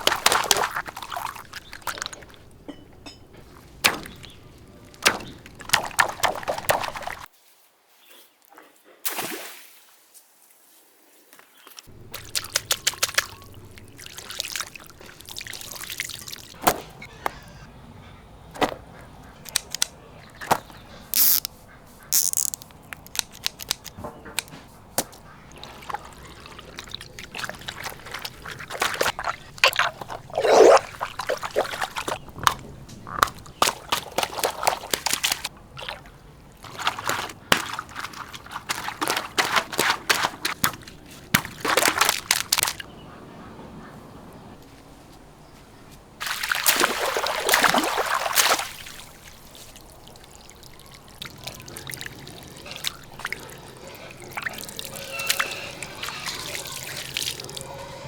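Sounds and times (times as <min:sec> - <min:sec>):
sharp clicks and splats: 0:00.0 - 0:07.3, 0:11.8 - 0:17.6, 0:18.6 - 0:36.0, 0:36.6 - 0:42.9
water pouring and splashing: 0:00.0 - 0:07.3, 0:11.9 - 0:17.0, 0:22.1 - 0:42.9, 0:46.2 - 0:58.0.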